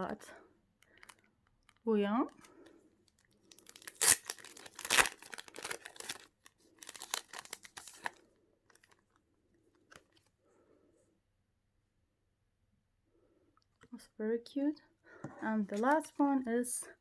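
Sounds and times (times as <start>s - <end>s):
packaging crinkling and tearing: 0.8s - 9.2s.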